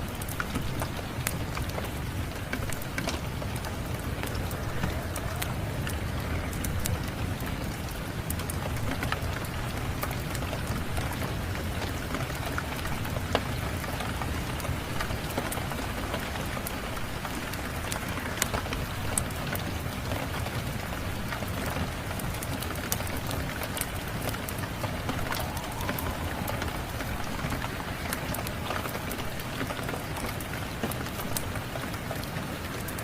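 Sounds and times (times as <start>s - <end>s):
steady rain: 0.0s - 33.0s
wood fire crackles: 0.0s - 33.0s
low rumble: 24.8s - 28.7s.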